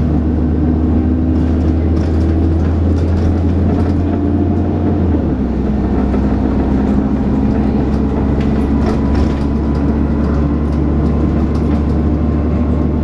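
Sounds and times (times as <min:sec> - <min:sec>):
bus engine drone: 0:00.0 - 0:13.0
bodywork rattling: 0:01.4 - 0:04.5, 0:05.9 - 0:12.2.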